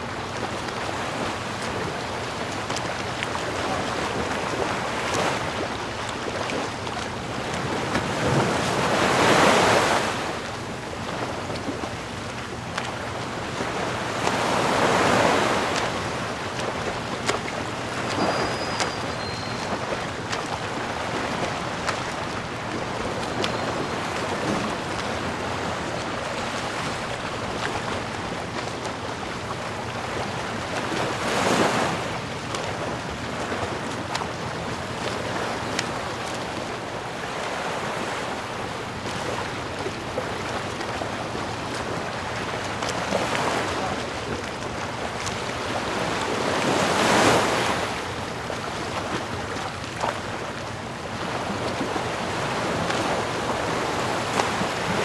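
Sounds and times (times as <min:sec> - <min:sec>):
sea waves washing on shore: 0:00.0 - 0:55.0
wave breaking: 0:12.8 - 0:28.8.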